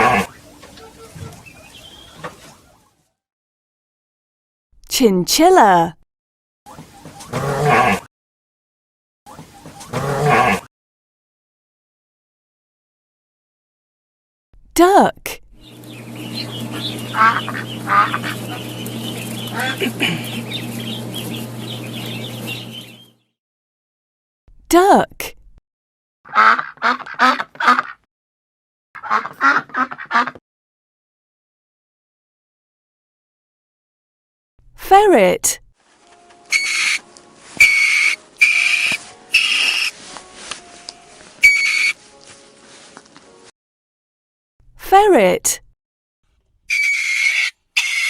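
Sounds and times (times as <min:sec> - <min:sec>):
low hum: 0:15.4 - 0:23.1
high chirping: 0:15.6 - 0:23.2, 0:36.5 - 0:37.0, 0:37.6 - 0:40.0, 0:41.4 - 0:42.0
duck quacking: 0:16.2 - 0:23.0, 0:26.3 - 0:28.0, 0:29.0 - 0:30.4, 0:36.5 - 0:37.0, 0:37.6 - 0:39.9, 0:41.4 - 0:42.0
ferret hissing: 0:16.4 - 0:21.4, 0:36.5 - 0:37.0, 0:37.6 - 0:40.0, 0:41.4 - 0:42.0.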